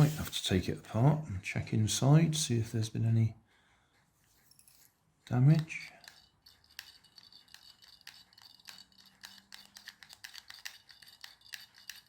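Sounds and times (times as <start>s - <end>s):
plastic parts clicking and tapping: 5.5s - 12.0s.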